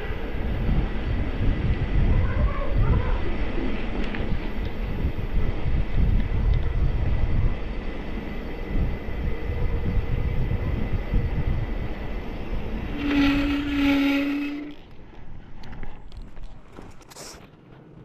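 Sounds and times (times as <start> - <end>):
wind buffeting microphone: 0.0 - 18.0
steady pitched horn tone: 12.8 - 14.9.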